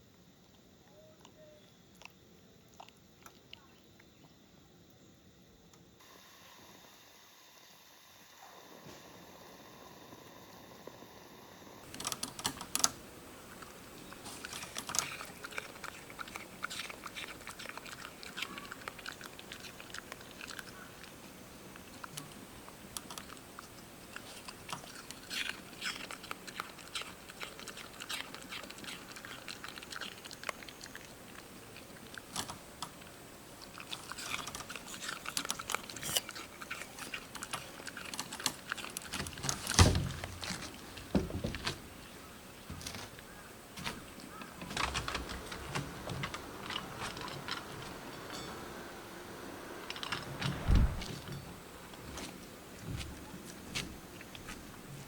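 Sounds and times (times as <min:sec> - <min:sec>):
crunchy chewing: 0:00.4 - 0:04.3, 0:11.8 - 0:55.0
loud thump: 0:50.4 - 0:51.3.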